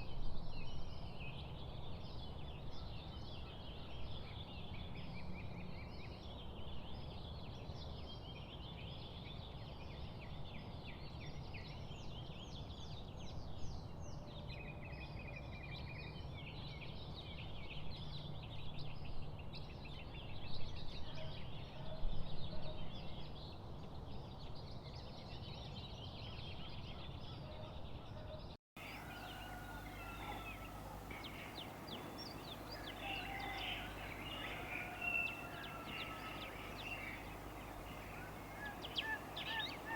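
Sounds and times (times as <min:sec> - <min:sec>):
songbirds chirping and trilling: 0:00.3 - 0:39.9
drawn-out bird whistles: 0:28.8 - 0:39.9
steady background noise: 0:28.8 - 0:39.9.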